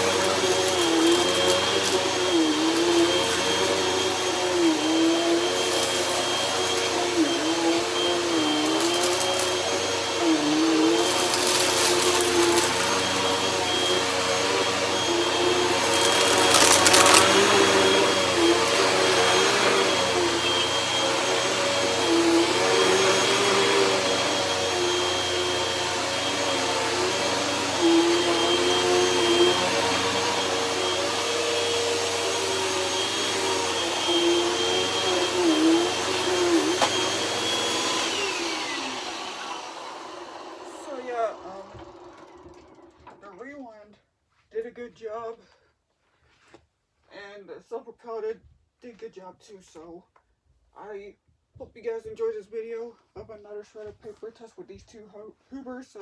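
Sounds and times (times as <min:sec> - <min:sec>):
upright vacuum cleaner running: 0:00.0 - 0:43.2.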